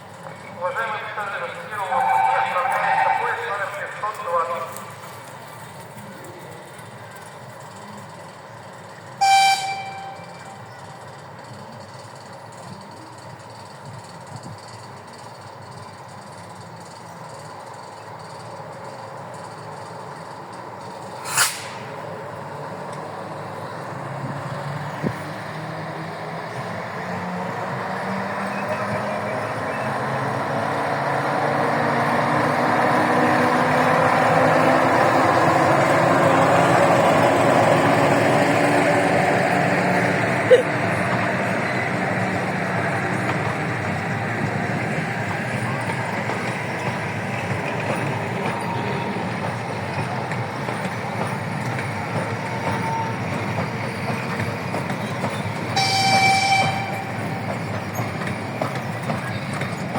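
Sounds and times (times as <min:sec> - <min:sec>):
diesel locomotive pulling train: 0:00.0 - 0:59.9
short sharp hiss: 0:21.2 - 0:21.9.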